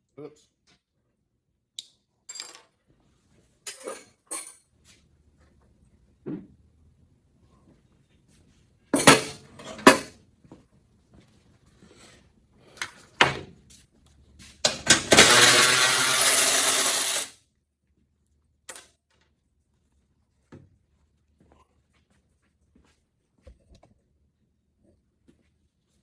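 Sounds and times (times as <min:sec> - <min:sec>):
handheld power tool running: 0:14.7 - 0:17.4.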